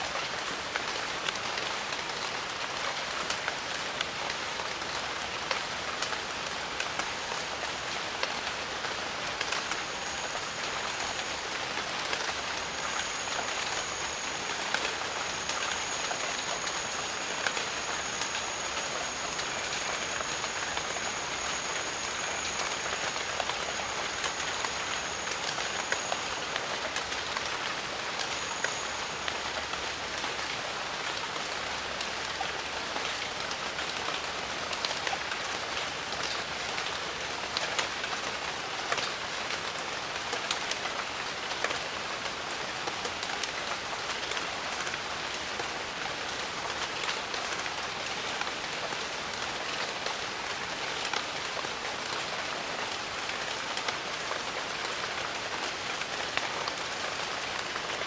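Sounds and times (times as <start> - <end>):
rain falling: 0.0 - 58.0
thin high whine: 5.2 - 30.6.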